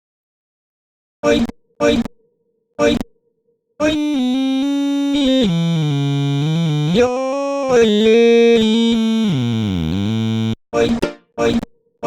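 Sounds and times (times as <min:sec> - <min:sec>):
pitch-corrected vocal melody: 0:03.8 - 0:10.6.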